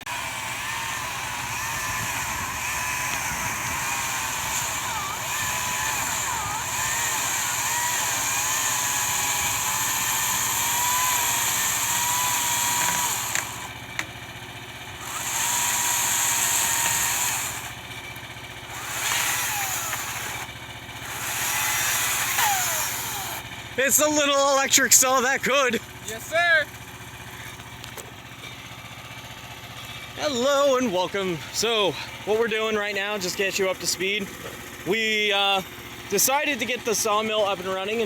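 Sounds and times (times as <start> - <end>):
electric saw cutting wood: 0.0 - 23.5.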